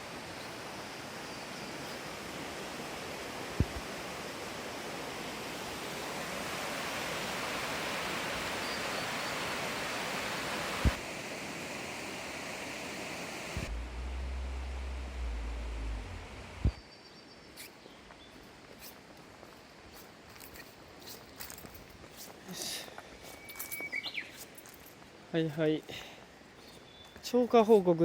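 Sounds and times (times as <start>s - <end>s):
stream water rushing: 0.0s - 15.1s
low steady hum: 13.3s - 16.8s.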